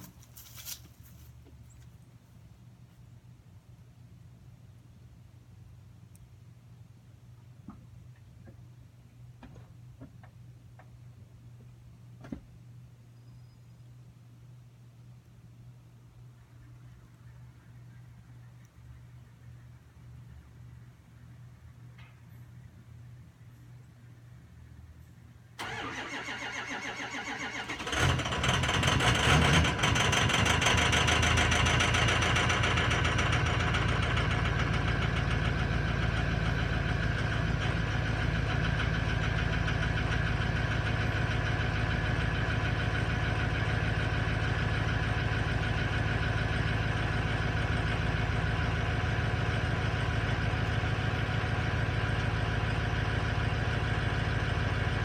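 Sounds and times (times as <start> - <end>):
diesel engine starter cranking: 25.6 - 36.2
diesel engine idling: 25.6 - 55.0.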